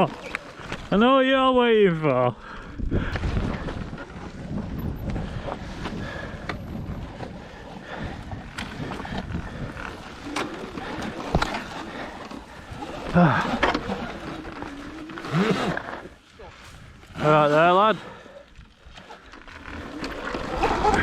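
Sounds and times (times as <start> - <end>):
electric dirt bike rattling: 0.0 - 21.0
wind buffeting microphone: 2.4 - 14.4.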